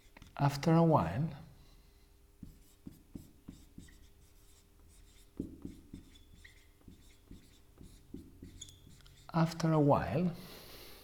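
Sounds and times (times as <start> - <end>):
pen scratching on paper: 2.4 - 9.5.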